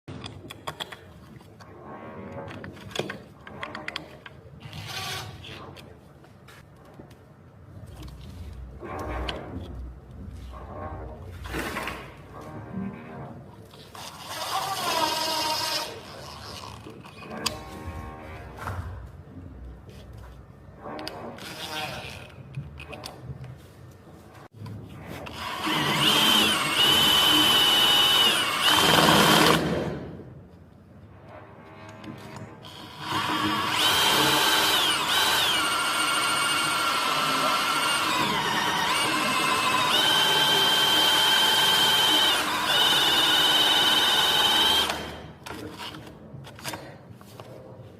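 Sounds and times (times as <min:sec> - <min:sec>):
electric drill boring: 0:14.0 - 0:16.3, 0:25.2 - 0:29.7, 0:32.6 - 0:46.0.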